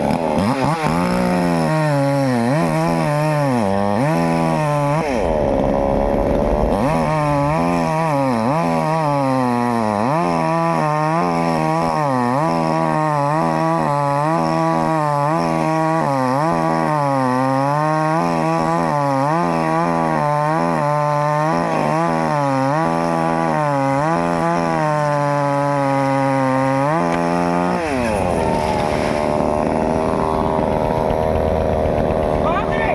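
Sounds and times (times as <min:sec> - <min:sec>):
chainsaw cutting wood: 0:00.0 - 0:32.9.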